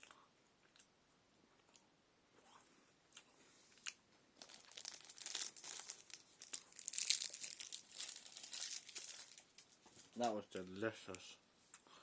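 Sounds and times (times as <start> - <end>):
plastic wrapper crinkling: 4.4 - 10.4.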